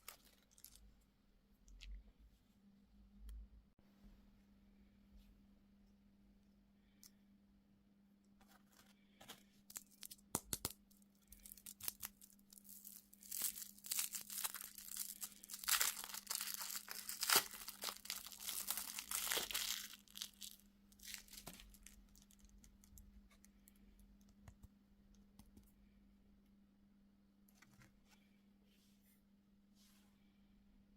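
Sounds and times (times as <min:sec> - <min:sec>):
plastic wrapper crinkling: 0:00.0 - 0:00.8, 0:09.7 - 0:10.3, 0:10.9 - 0:23.4
low electrical hum: 0:00.0 - 0:30.9.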